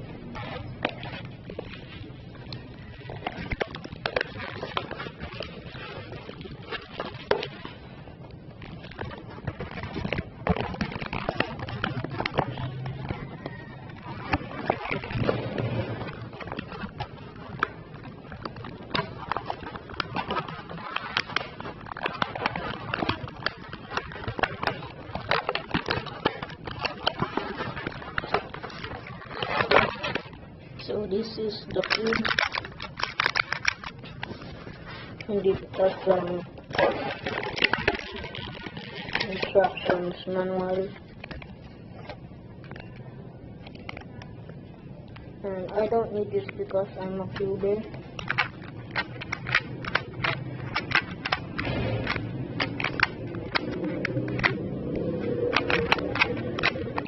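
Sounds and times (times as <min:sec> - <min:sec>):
packaging clicks and rustles: 0:00.0 - 0:57.0.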